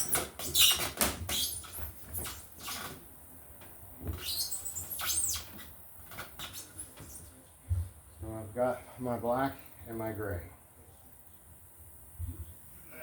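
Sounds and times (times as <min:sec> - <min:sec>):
wires rustling and scraping: 0:00.0 - 0:07.5.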